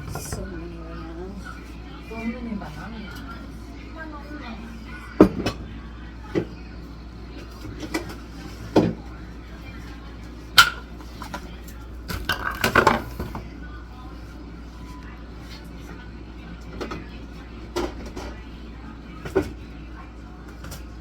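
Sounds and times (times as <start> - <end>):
faint television talk and music: 0.0 - 21.0
dishes knocking and clinking: 10.6 - 11.4, 12.1 - 13.4.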